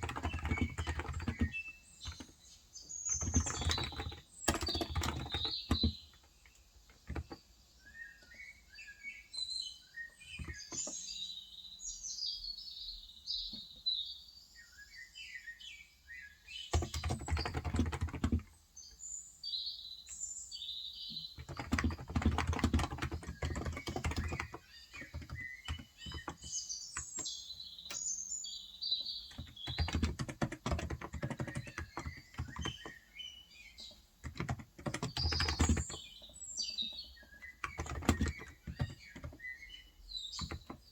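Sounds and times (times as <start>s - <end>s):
typing on keyboard: 0.0s - 2.5s, 3.1s - 7.4s, 10.3s - 11.1s, 16.7s - 18.6s, 21.4s - 28.0s, 29.2s - 33.0s, 33.8s - 39.6s, 40.3s - 40.9s
birds chirping: 0.0s - 40.9s.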